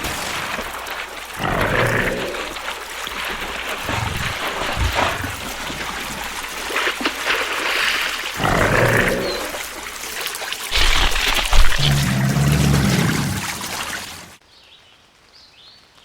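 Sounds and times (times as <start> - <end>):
steady rushing hiss: 0.0 - 12.4
animal call: 3.8 - 6.2, 8.4 - 9.8.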